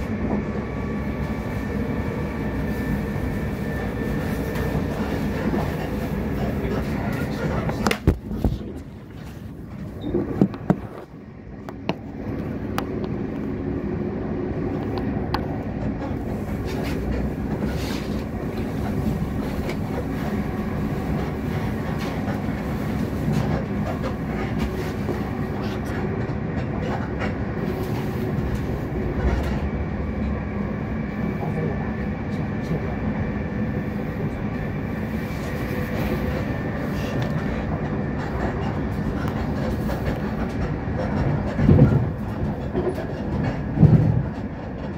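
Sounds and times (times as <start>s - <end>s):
train wheels rumbling on rail: 0.0s - 44.9s
rail-joint clicks: 36.2s - 44.9s.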